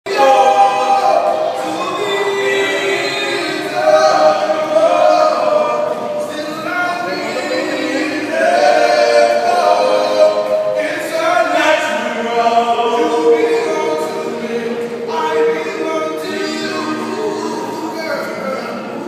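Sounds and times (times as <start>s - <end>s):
group singing a cappella: 0.1s - 19.0s.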